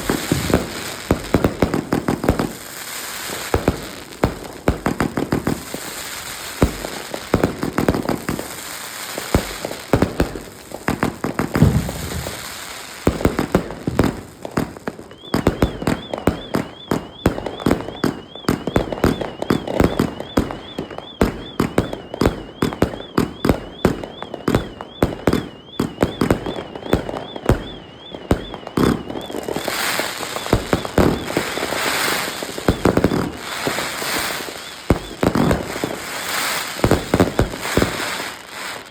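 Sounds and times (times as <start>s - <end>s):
fireworks bangs: 0.0s - 38.9s
fireworks crackling: 0.0s - 38.9s
high warbling whistle: 11.6s - 13.0s.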